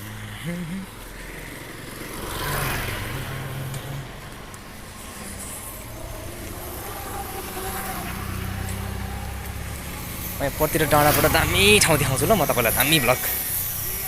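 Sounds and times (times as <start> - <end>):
low engine drone: 0.0 - 14.0
vehicle passing: 0.0 - 14.0.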